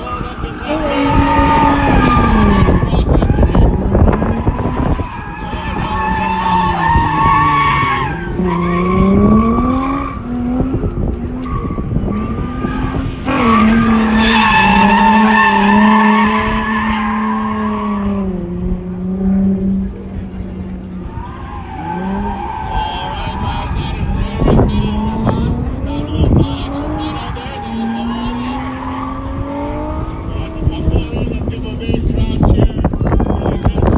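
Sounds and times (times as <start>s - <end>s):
tyres squealing: 0.0s - 10.4s, 11.3s - 17.8s, 21.2s - 30.6s
car engine revving: 0.0s - 33.9s.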